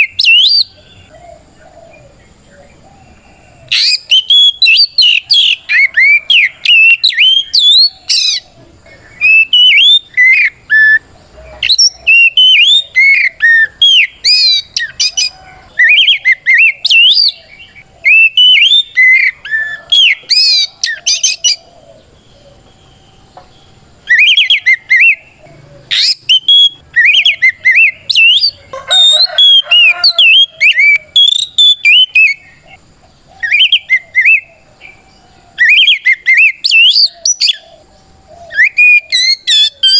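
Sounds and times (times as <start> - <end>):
bird singing whistles: 0.0 - 1.1, 3.7 - 8.5, 9.2 - 21.6, 24.0 - 32.6, 33.4 - 34.5, 35.6 - 37.7, 38.4 - 39.9.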